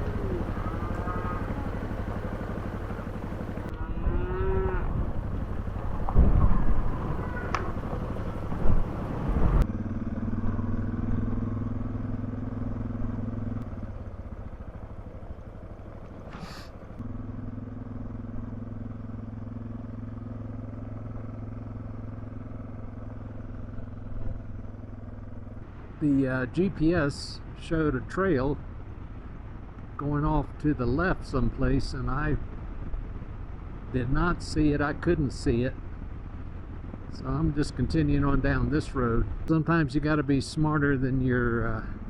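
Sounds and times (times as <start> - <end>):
motorcycle engine running: 0.0 - 26.9, 27.6 - 42.0.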